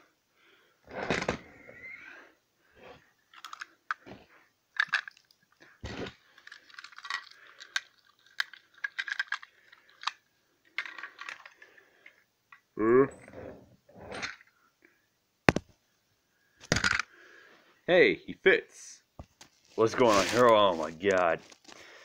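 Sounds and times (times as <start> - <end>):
small hard objects clicking and clinking: 3.3 - 4.1, 4.7 - 12.6, 16.6 - 17.1.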